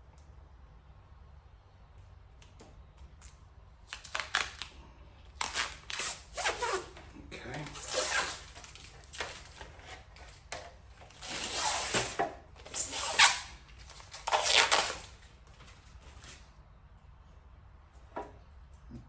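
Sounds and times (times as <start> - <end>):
adhesive tape ripping off: 3.2 - 15.4.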